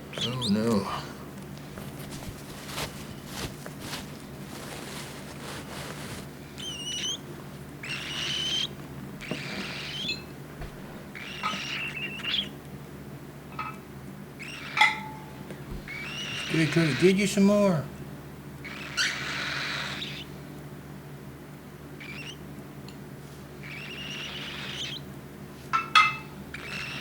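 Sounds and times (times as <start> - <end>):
faint clicks and rustling: 0.2 - 6.7
cockatiel chick raspy chirps: 7.8 - 10.3, 11.1 - 12.6, 15.9 - 16.7, 18.6 - 20.3, 22.0 - 22.4, 23.6 - 25.0, 26.5 - 27.0.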